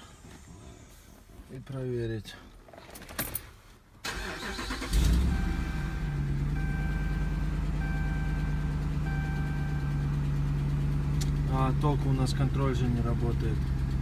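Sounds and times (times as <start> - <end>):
truck engine starting and idling: 4.0 - 14.0
dashboard warning chime: 5.2 - 10.1.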